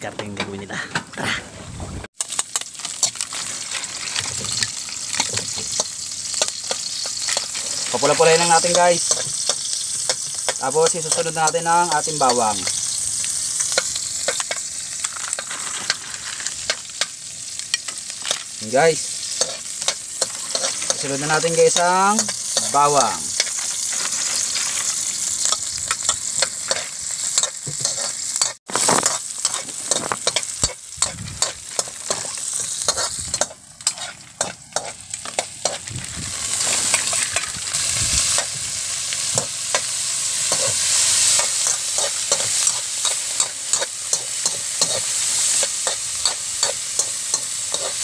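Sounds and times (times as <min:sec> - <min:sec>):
food sizzling in a wok: 0:02.2 - 0:48.0
metal ladle scraping a pan: 0:19.2 - 0:22.7, 0:23.4 - 0:35.8.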